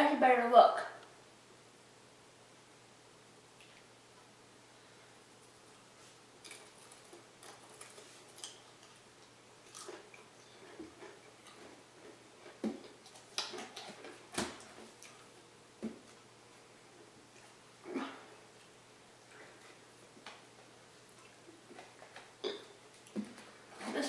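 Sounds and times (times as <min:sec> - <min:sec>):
potato chip crunching: 0:06.4 - 0:15.3.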